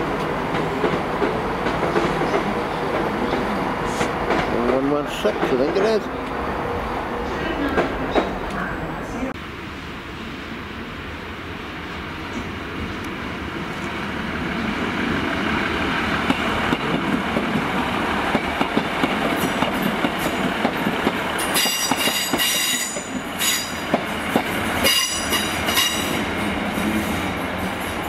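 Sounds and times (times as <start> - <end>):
train wheels clicking over rail joints: 16.2 - 26.3.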